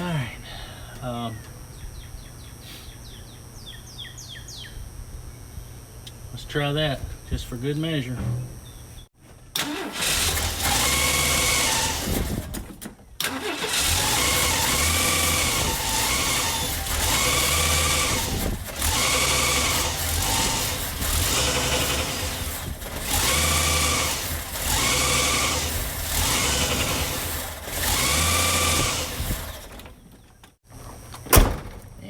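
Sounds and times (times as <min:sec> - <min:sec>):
engine running unevenly: 0:09.6 - 0:31.0.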